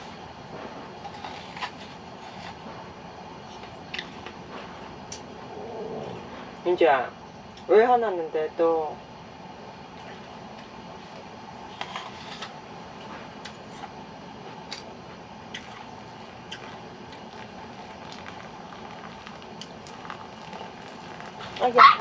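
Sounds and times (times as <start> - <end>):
steady background hiss: 0.0 - 22.0
small clicks and crackles: 16.5 - 21.7.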